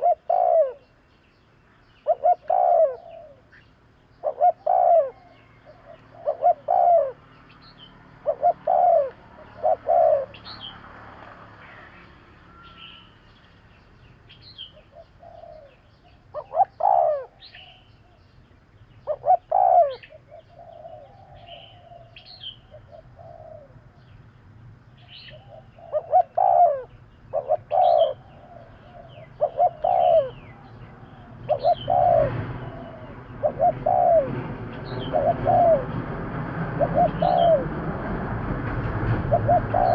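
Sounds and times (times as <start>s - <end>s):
dove cooing: 0.0s - 0.9s, 2.0s - 3.6s, 4.2s - 7.3s, 8.2s - 10.8s, 14.6s - 18.2s, 19.0s - 24.1s, 25.0s - 38.2s, 39.1s - 39.9s
small birds chirping: 0.0s - 35.9s.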